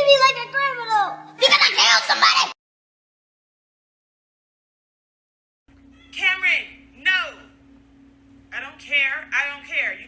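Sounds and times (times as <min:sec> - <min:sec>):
steady low hum: 0:05.7 - 0:10.0.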